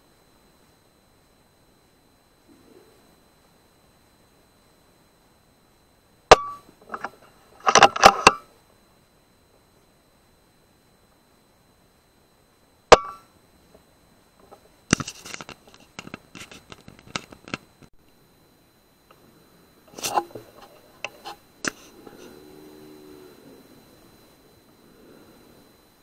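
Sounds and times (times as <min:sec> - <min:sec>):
faint low hum: 0:00.0 - 0:26.0
clicks rattles and rustles: 0:14.9 - 0:17.9.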